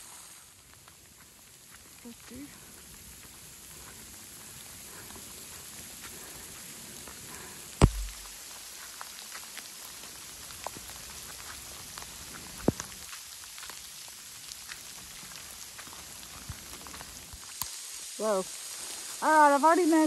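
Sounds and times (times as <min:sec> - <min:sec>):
sharp ticks of sleet: 0:00.0 - 0:19.3
rain and sleet hissing: 0:00.0 - 0:20.0
loud knock with low thump: 0:07.8 - 0:08.2
sharp tap: 0:07.8 - 0:08.3.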